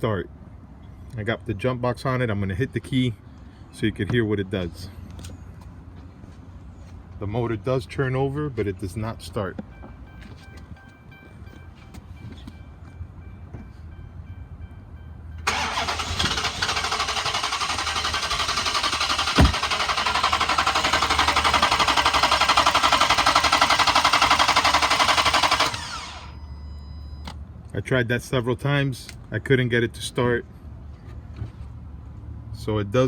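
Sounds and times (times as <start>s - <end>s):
starter cranking engine: 15.4s - 26.4s
sharp thump: 19.4s - 19.6s.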